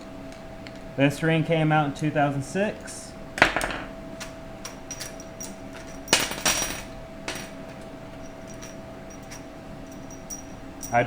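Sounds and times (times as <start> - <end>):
faint steady hum: 0.0 - 11.0
metal parts clinking and knocking: 3.4 - 11.0.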